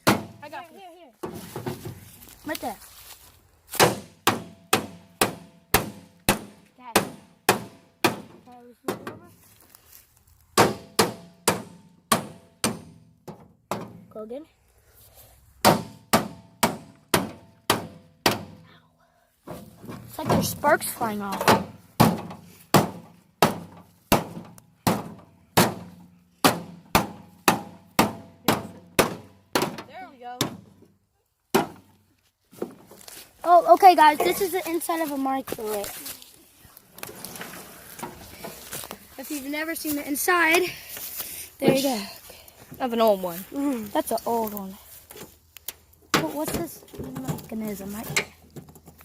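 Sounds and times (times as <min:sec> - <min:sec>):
sledgehammer striking sheet metal: 0:15.6 - 0:18.6.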